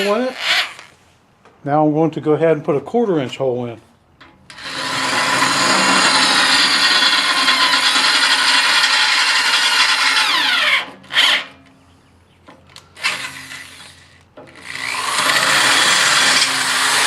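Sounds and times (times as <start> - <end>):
electric drill boring steel: 4.5 - 11.5, 13.0 - 17.0.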